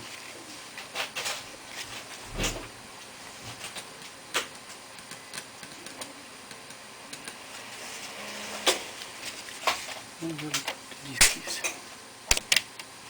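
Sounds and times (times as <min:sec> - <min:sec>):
laptop keyboard keys clicking: 0:12.3 - 0:12.8.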